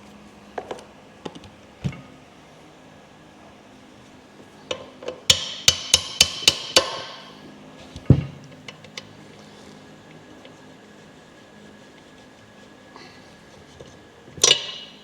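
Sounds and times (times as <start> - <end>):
hammer striking metal: 5.3 - 7.4.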